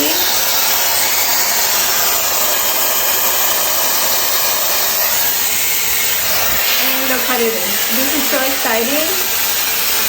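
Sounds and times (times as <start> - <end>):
hair styler blowing air: 0.0 - 10.0.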